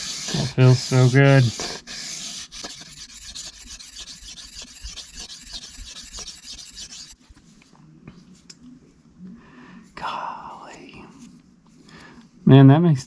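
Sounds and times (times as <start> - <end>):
knife scraping on whetstone: 0.0 - 7.2.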